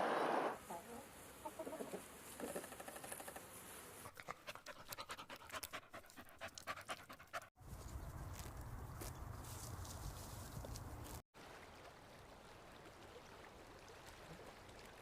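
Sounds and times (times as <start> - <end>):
dog panting: 4.1 - 7.5.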